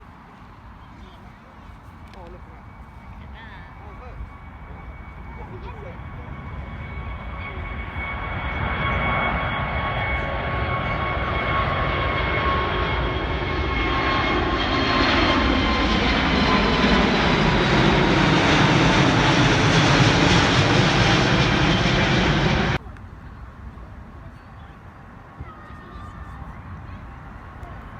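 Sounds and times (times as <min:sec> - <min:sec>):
jet airliner passing close: 0:02.4 - 0:22.8.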